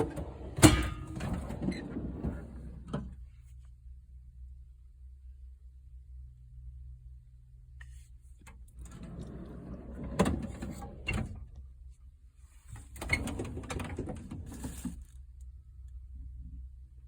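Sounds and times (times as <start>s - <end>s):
toolbox drawers sliding and rattling: 0.0s - 3.2s, 12.7s - 15.0s.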